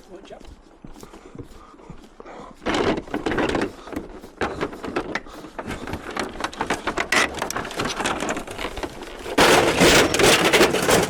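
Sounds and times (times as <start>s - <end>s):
small clicks and rattles: 2.6s - 11.0s
louder clatter: 9.2s - 11.0s.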